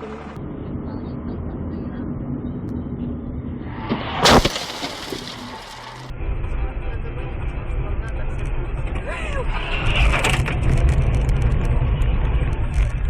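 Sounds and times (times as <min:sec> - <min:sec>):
in-car road and engine noise: 0:00.0 - 0:13.0
vehicle collision crash: 0:03.7 - 0:06.1.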